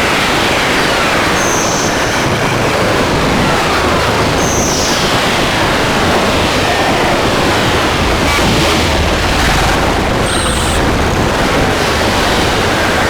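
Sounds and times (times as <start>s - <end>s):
harsh distorted noise music: 3.0s - 13.0s.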